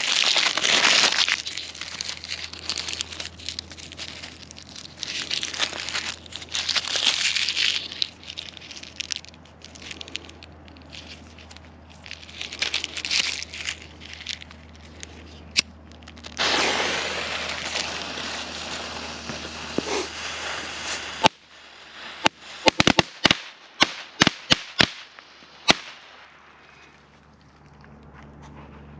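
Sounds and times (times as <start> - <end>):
firecracker hissing: 16.2 - 26.2
firecracker sharp bangs: 16.4 - 21.4, 22.0 - 26.2.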